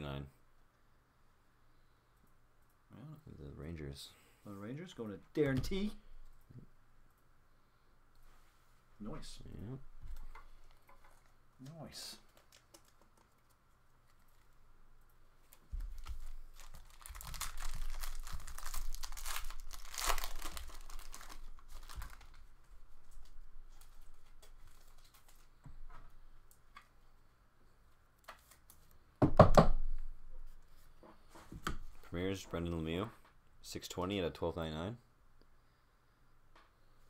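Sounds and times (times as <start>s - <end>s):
wrapper tearing and crinkling: 15.8s - 22.5s.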